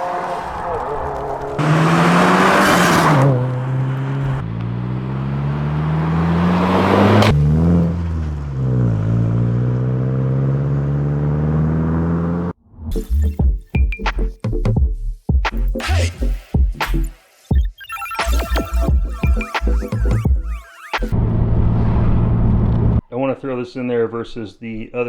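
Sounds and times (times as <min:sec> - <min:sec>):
car exhaust under acceleration: 0:00.0 - 0:12.6, 0:21.1 - 0:23.0
music with a beat: 0:13.0 - 0:21.2.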